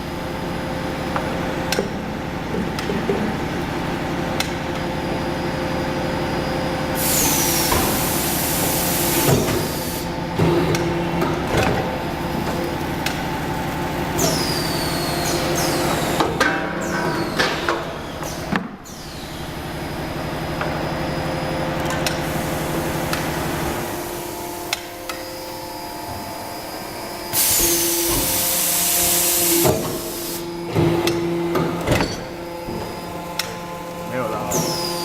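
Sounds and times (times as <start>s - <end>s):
machine hum: 0.0s - 35.0s
loud hiss: 7.0s - 10.1s.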